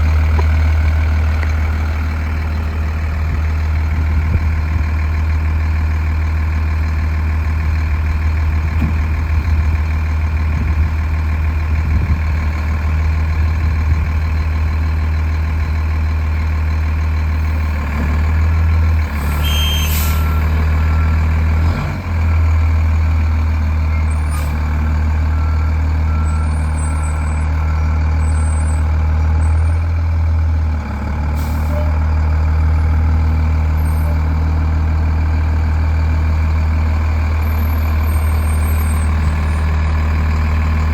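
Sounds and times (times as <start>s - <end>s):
truck engine droning: 0.0s - 40.9s.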